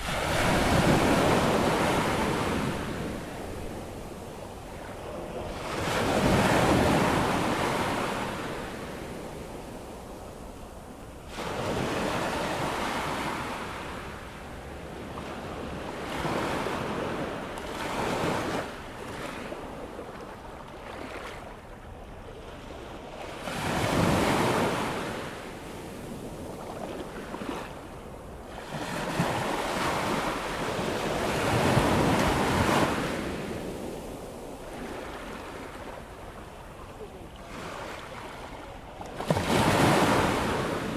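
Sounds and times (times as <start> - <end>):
ocean waves breaking on beach: 0.0 - 14.4, 23.5 - 40.9.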